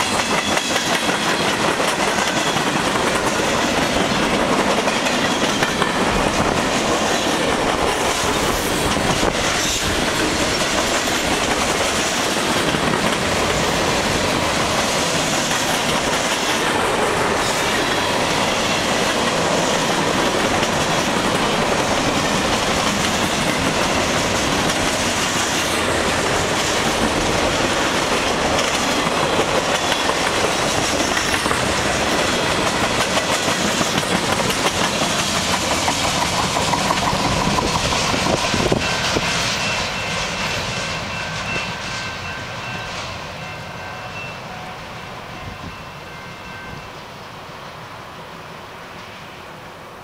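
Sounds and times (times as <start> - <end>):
freight train wheels clacking: 0.0 - 47.4.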